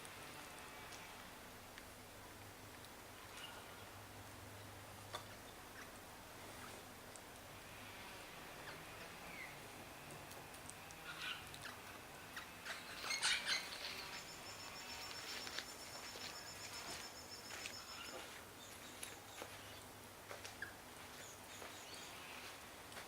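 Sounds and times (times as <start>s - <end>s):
bird chirps: 12.8s - 19.8s.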